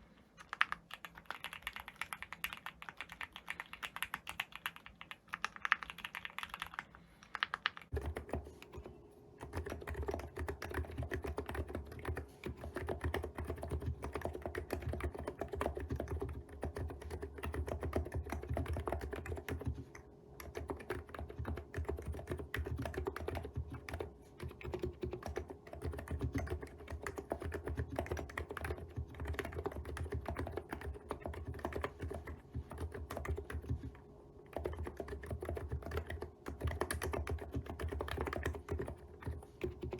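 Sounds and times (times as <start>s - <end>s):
fast keyboard typing: 0.4s - 39.9s.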